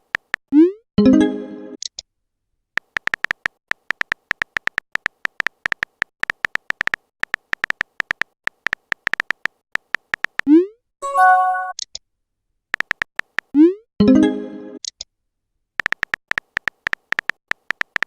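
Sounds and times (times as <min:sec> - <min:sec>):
phone keyboard tapping clicks: 0:00.0 - 0:00.4, 0:02.8 - 0:10.5, 0:12.7 - 0:13.5, 0:15.8 - 0:18.0.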